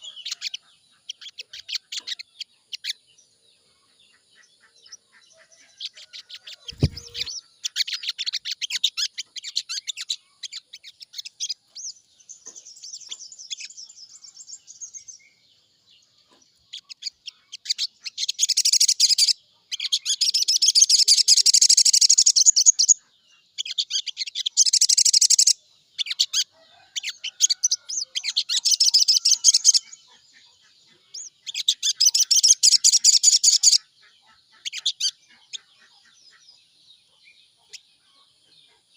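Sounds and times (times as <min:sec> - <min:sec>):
bird trilling: 0:05.9 - 0:11.4, 0:23.6 - 0:30.2
low thump: 0:06.7 - 0:07.3.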